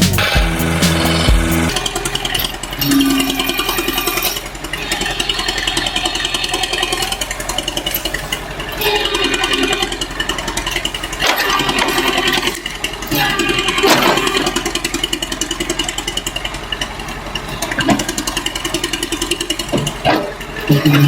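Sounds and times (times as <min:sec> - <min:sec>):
engine running with pulsing beat: 0:00.0 - 0:04.6.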